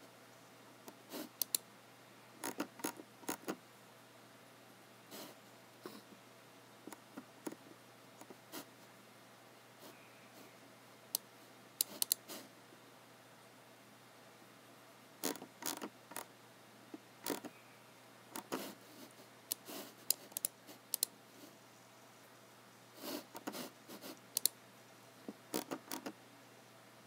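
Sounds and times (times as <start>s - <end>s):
mouse and keyboard clicks: 0.9s - 1.6s, 2.4s - 3.6s, 11.8s - 12.2s, 15.2s - 16.3s, 17.2s - 17.6s, 18.4s - 18.6s, 19.5s - 21.1s, 24.3s - 24.6s, 25.5s - 26.2s.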